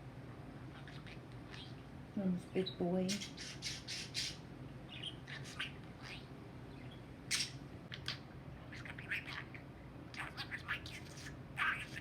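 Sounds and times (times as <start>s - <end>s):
budgerigar chirping: 3.1s - 12.0s.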